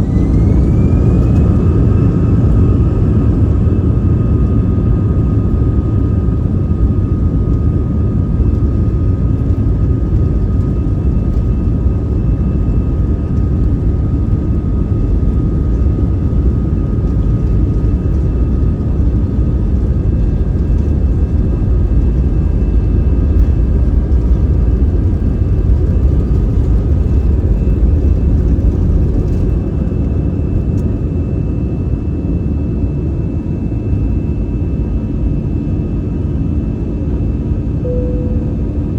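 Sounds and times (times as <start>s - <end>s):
airliner engine roar: 0.0s - 38.9s
faint steady whine: 36.5s - 38.9s.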